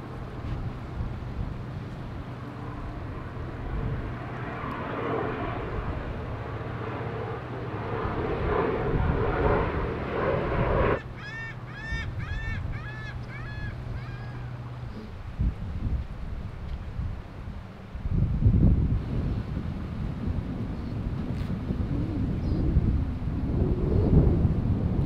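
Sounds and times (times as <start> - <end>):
steady low hum: 0.0 - 25.0
rushing noise: 3.8 - 11.3
bird calling ringing notes: 11.0 - 15.0.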